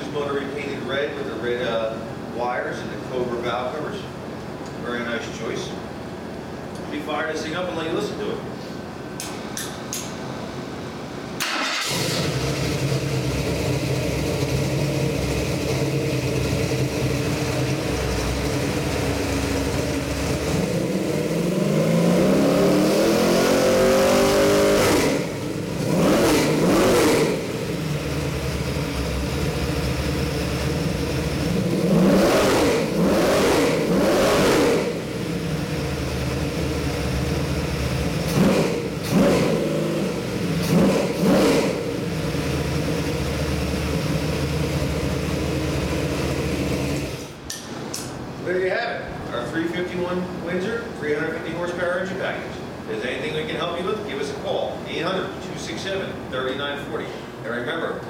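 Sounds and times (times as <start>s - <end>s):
engine starting and idling: 11.4s - 21.0s
engine revving: 11.4s - 47.4s.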